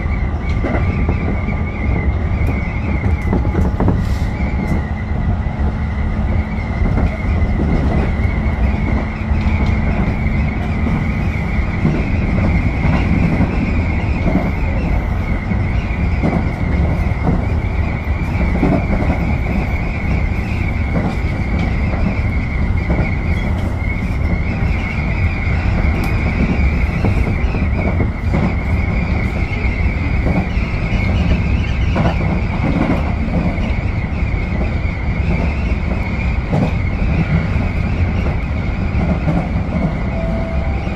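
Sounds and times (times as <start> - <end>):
train wheels rumbling on track: 0.0 - 40.9
high wavering tone: 40.0 - 40.9.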